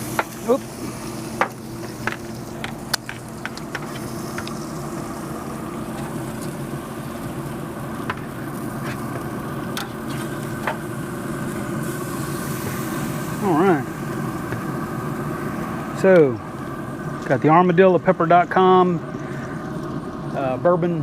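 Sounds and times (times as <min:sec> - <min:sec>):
grill humming: 0:00.0 - 0:21.0
tongs clicking on grill grates: 0:01.4 - 0:04.6.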